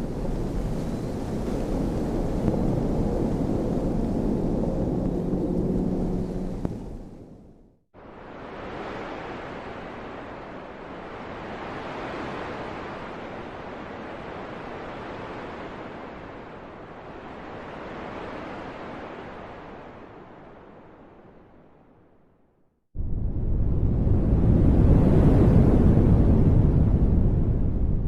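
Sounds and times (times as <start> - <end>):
wind rushing: 0.0 - 7.7
deep rumble: 0.0 - 7.8, 23.0 - 28.0
wind blowing in gusts: 0.0 - 22.0, 23.0 - 28.0.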